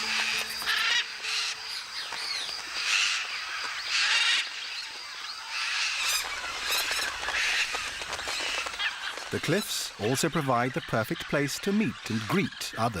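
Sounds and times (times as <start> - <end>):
parrots squawking: 0.0 - 1.6.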